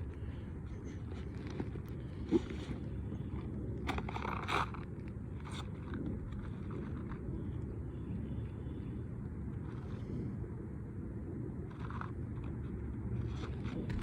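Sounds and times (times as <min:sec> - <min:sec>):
low rumble: 0:13.3 - 0:14.0.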